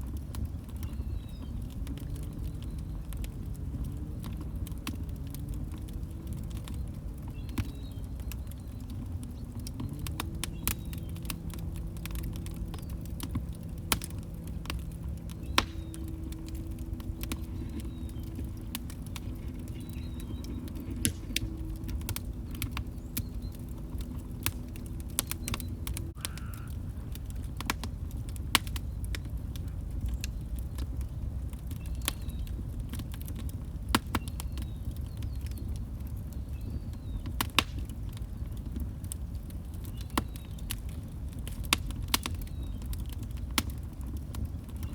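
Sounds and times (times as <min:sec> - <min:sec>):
faint low hum: 0:00.0 - 0:32.6
wood fire crackling and popping: 0:00.0 - 0:44.9.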